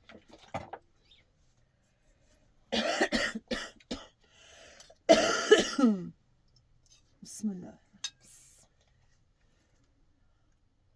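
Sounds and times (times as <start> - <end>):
person coughing: 2.8 - 4.1, 5.1 - 6.1.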